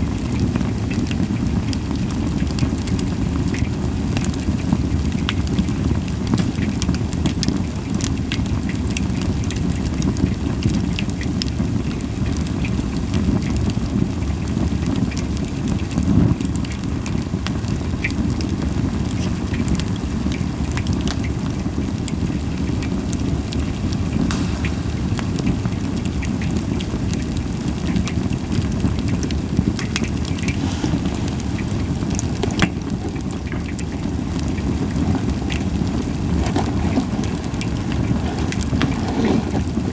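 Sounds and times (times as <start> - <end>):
wood fire crackling: 5.1 - 9.0, 14.5 - 39.9
sharp pops: 6.4 - 7.2, 24.1 - 28.2, 29.9 - 33.9
low rush of fire: 17.1 - 39.9.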